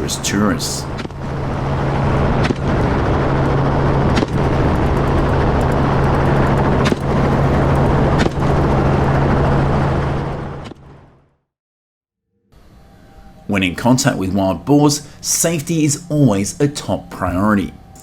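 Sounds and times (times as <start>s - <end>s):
helicopter engine and rotor: 0.2s - 11.0s
sharp cracks: 4.1s - 9.4s.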